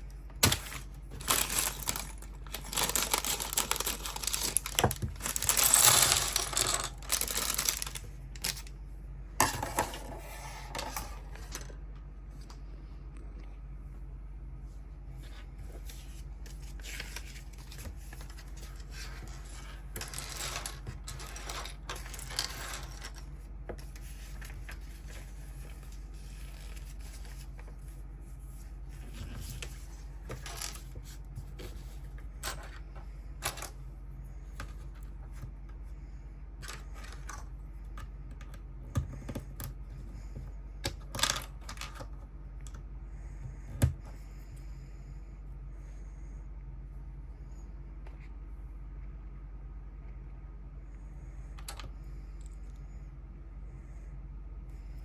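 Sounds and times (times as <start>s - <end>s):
steady low hum: 0.0s - 55.0s
packaging rustling and crinkling: 0.4s - 8.7s
plastic pieces clicking: 0.4s - 8.7s.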